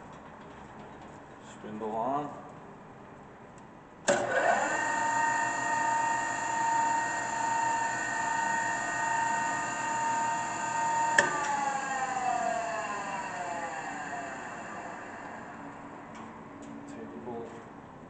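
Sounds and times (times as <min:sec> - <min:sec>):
grinder motor whining: 0:04.2 - 0:15.8.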